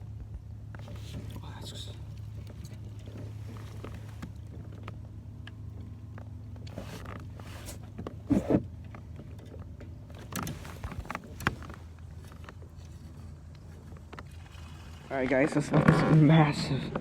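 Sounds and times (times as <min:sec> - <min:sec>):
low engine hum: 0:00.0 - 0:17.0
clicks and knocks of handling gear: 0:02.2 - 0:14.6.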